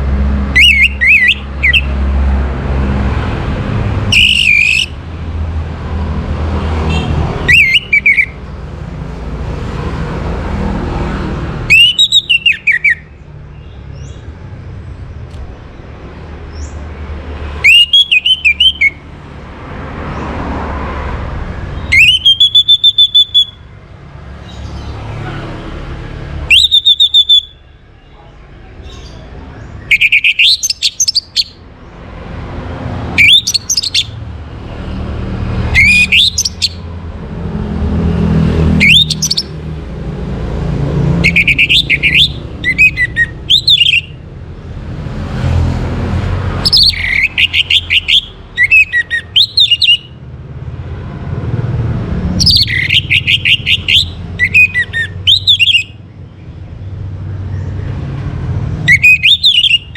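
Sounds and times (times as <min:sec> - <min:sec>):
thrush singing: 0:00.2 - 0:05.3, 0:06.4 - 0:08.5, 0:11.6 - 0:13.0, 0:17.2 - 0:23.6, 0:26.4 - 0:27.6, 0:28.9 - 0:32.0, 0:32.6 - 0:34.7, 0:35.5 - 0:37.0, 0:38.1 - 0:44.2, 0:46.5 - 0:50.2, 0:52.4 - 0:56.0.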